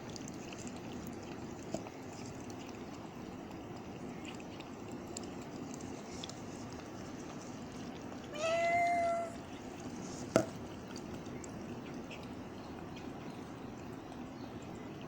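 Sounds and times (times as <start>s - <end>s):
cat meowing: 8.3s - 9.4s.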